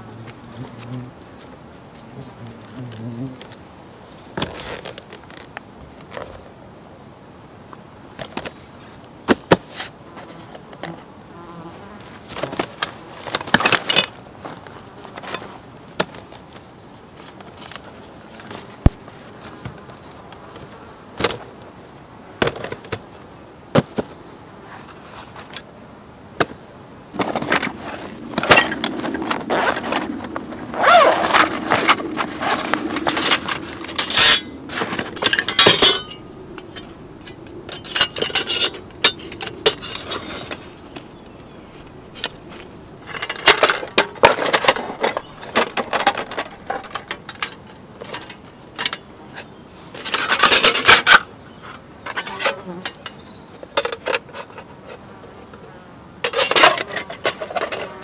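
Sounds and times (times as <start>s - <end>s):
metal rubbing and scraping: 27.2s - 46.9s
metal cookware clinking: 35.2s - 36.9s.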